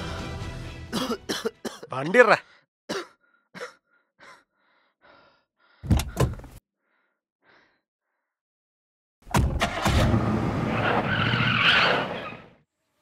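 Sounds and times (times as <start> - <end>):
car doors slamming: 5.8 - 6.6.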